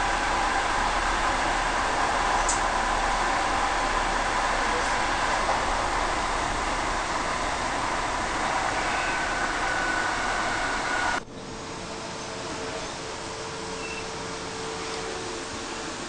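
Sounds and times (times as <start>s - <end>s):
faint whining tones: 0.0s - 16.0s
train rolling noise: 0.0s - 16.0s.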